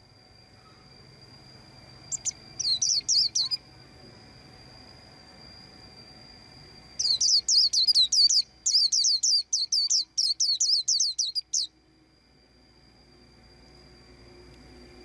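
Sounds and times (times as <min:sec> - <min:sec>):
faint steady high tone: 0:00.0 - 0:15.0
bird chirping: 0:02.1 - 0:03.6, 0:07.0 - 0:11.8.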